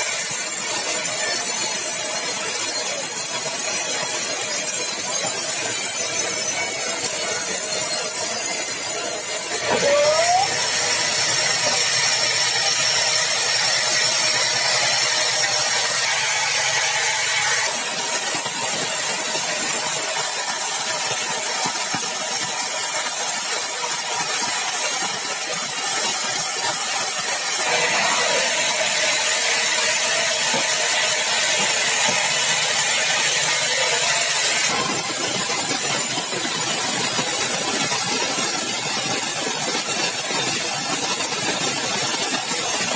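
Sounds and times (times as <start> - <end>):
sawmill saw cutting log: 0.0 - 42.9
short rising whine: 9.6 - 11.2.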